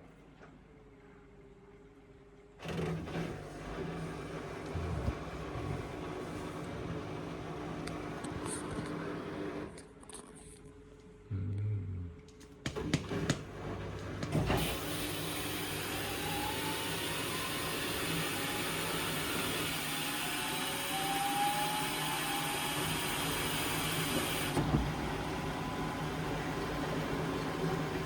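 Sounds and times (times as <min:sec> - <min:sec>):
washing machine spinning: 0:02.6 - 0:09.7, 0:12.6 - 0:28.0.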